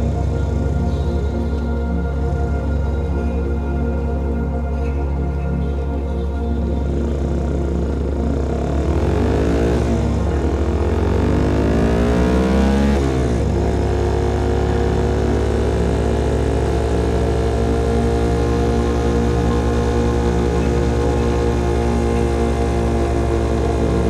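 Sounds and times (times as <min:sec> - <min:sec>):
motorcycle engine accelerating: 0:06.9 - 0:24.0.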